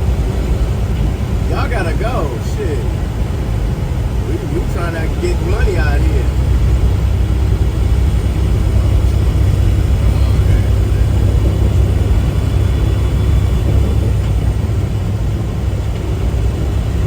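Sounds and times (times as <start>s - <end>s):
diesel truck engine drone: 0.0s - 17.0s
road noise: 0.0s - 17.0s.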